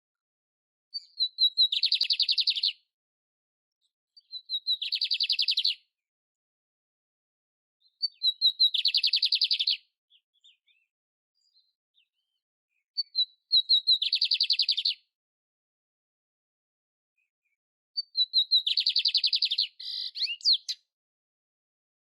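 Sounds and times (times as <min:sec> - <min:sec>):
canary singing chirps and trills: 0:00.9 - 0:02.9, 0:03.9 - 0:05.9, 0:07.8 - 0:15.1, 0:17.2 - 0:20.9.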